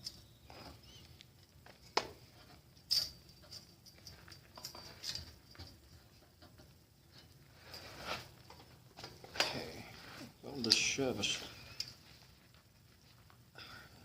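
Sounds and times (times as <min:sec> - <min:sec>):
small metal parts clicking: 0:02.7 - 0:07.4.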